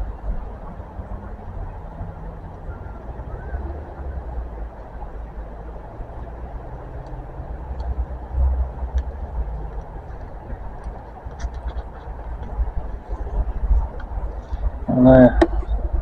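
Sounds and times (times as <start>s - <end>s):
wind buffeting microphone: 0.0s - 16.0s
faint clicks: 7.0s - 8.0s, 8.9s - 13.0s.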